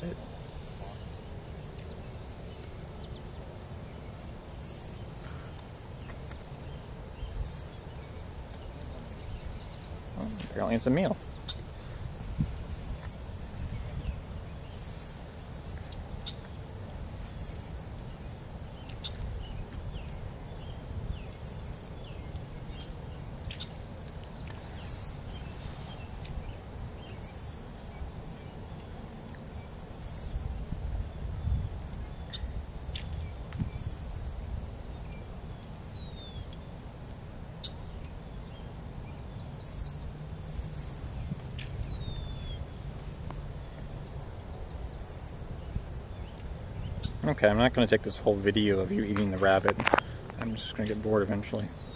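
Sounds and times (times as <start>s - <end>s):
bird chirping: 0.0s - 12.0s, 12.7s - 29.0s, 29.6s - 36.7s, 37.6s - 40.4s, 41.2s - 47.3s, 48.0s - 51.9s
wind rumble on microphone: 8.9s - 28.5s, 30.0s - 36.5s, 40.5s - 50.9s.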